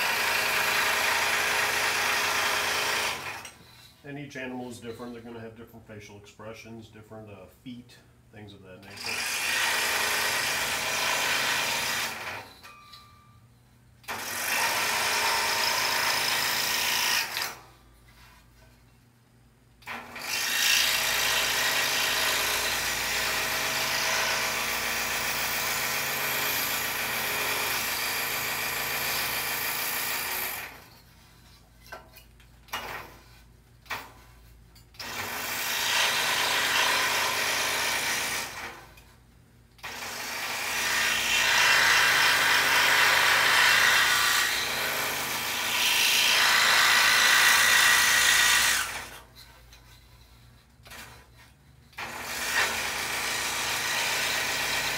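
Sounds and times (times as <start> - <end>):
scroll saw cutting wood: 0.0 - 3.6, 8.9 - 12.6, 14.1 - 17.6, 19.9 - 30.9, 35.0 - 39.0, 39.8 - 49.5, 52.0 - 54.9.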